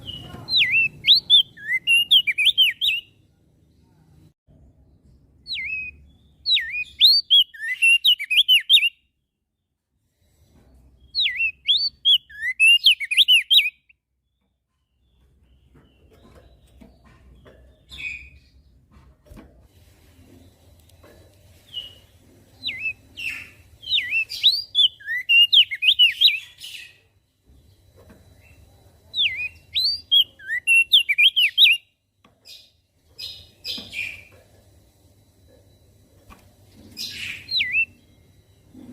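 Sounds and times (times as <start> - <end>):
soft bird chirps: 0.0 - 38.9
faint low hum: 31.9 - 38.9.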